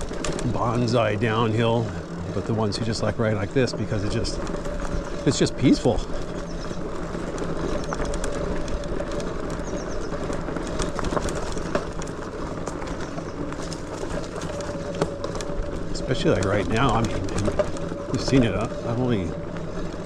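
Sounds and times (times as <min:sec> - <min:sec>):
bike tyre riding noise on dirt: 0:00.0 - 0:20.0
electric motor hum: 0:00.0 - 0:20.0.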